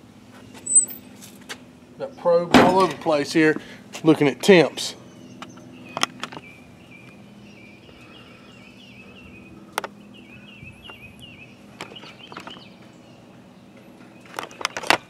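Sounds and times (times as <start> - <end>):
small bird chirping: 0.4 - 1.1, 5.0 - 15.0.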